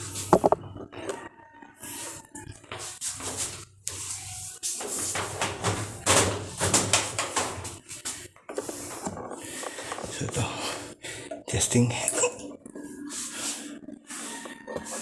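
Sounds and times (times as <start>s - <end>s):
parts clicking and knocking: 0.3s - 1.0s, 4.8s - 10.1s.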